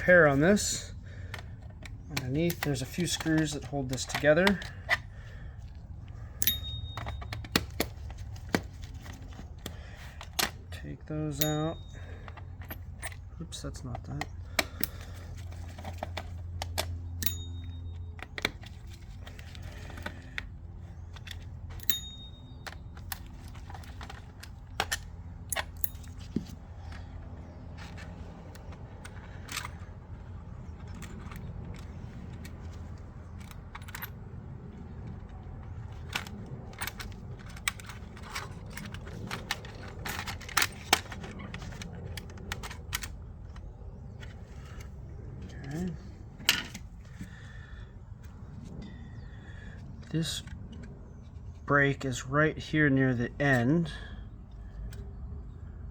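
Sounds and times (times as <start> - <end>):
steady low hum: 0.0 - 55.9
plastic and metal clicks: 1.2 - 5.1.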